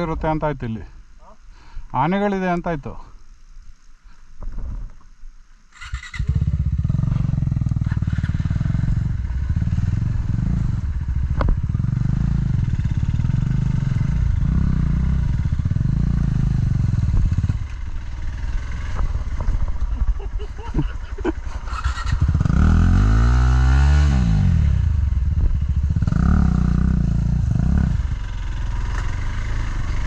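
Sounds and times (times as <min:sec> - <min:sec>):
motorcycle engine revving: 0:05.7 - 0:30.0.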